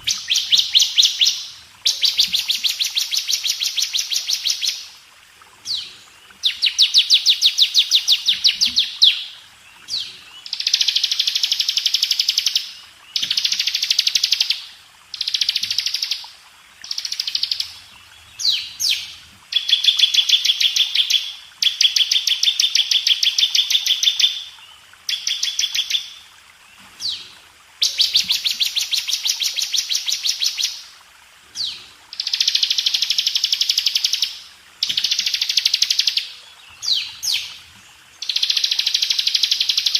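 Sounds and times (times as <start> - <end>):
bird trilling song: 0.0 - 4.8.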